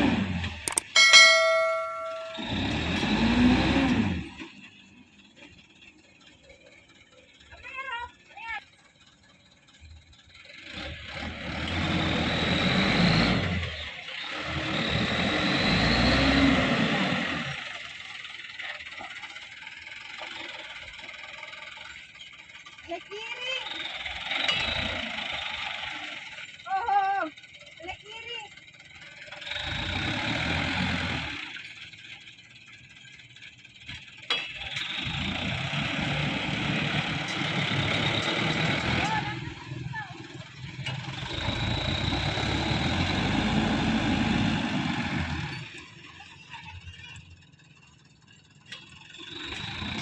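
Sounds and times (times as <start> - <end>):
dump truck engine revving hard: 0.0 - 0.6, 2.4 - 4.6, 10.4 - 18.2, 23.6 - 26.5, 29.2 - 31.7, 34.6 - 46.4, 49.2 - 50.0
sharp click: 0.7 - 1.0.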